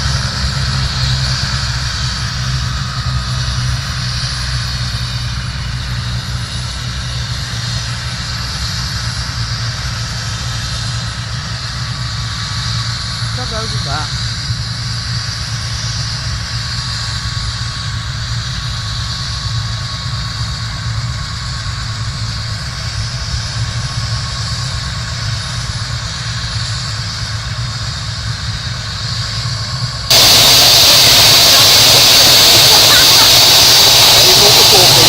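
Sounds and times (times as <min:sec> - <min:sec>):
helicopter running: 0:09.8 - 0:14.9, 0:30.1 - 0:35.0
loud rushing hiss: 0:30.1 - 0:35.0.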